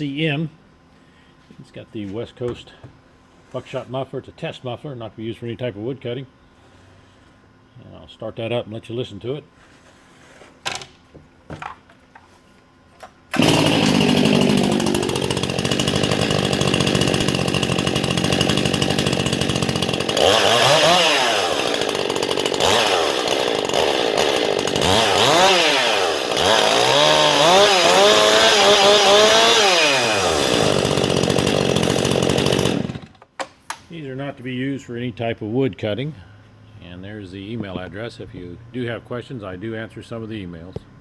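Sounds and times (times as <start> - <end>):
chainsaw starting and revving: 13.3 - 33.2.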